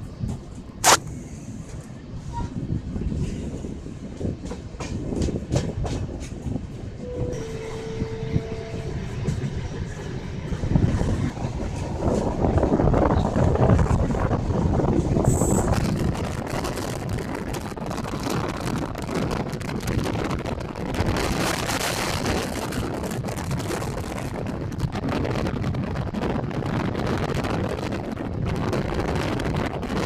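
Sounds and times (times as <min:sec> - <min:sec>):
train wheels rumbling on rail: 0:00.0 - 0:30.0
wind buffeting microphone: 0:00.0 - 0:30.0
brief high tone: 0:07.1 - 0:09.3.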